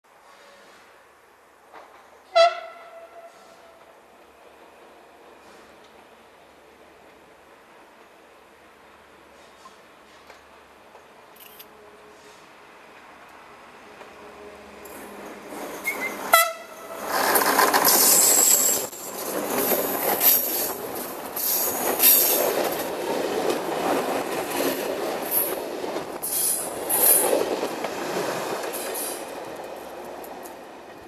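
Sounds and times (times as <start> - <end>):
train horn blast: 2.3 - 3.9, 16.2 - 17.0
train wheels rumbling and clattering: 9.2 - 31.0
locomotive passing: 12.5 - 31.0.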